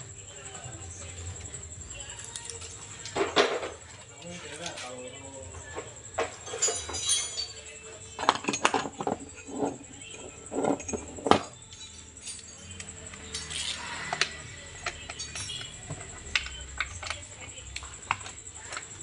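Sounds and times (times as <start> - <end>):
metal tools clinking: 6.2 - 14.2, 14.8 - 17.2.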